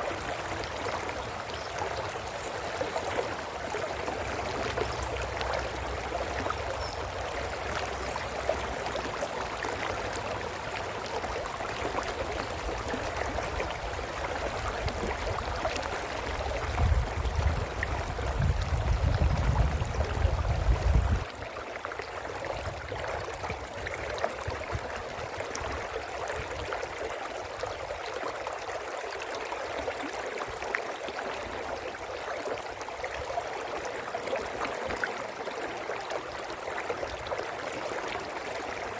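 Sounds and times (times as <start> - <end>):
brook babbling: 0.0 - 38.9.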